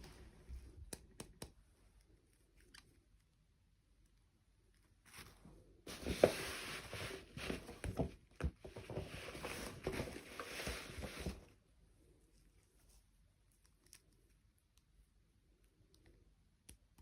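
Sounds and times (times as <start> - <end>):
toy packaging rustling: 8.6 - 11.6.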